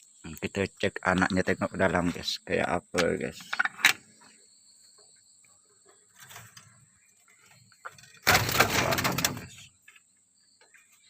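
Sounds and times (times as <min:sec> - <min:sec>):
quiet rustling: 0:03.0 - 0:11.0.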